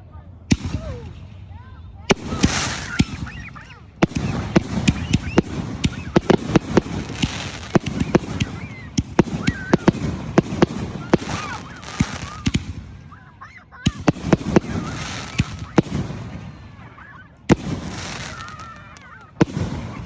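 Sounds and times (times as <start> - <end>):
fireworks bangs and crackles: 0.5 - 20.0
fireworks high wavering squeals: 2.1 - 13.2, 13.9 - 20.0.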